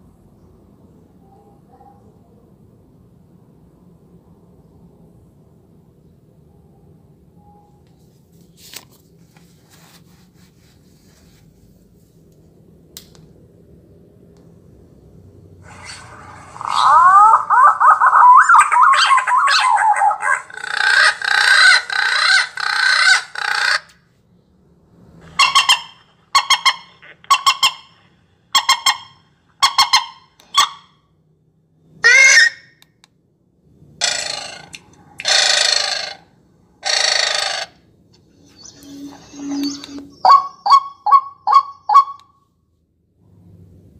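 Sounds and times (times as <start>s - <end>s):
bird calls from speaker: 15.7s - 23.9s, 25.3s - 30.8s, 38.4s - 42.2s.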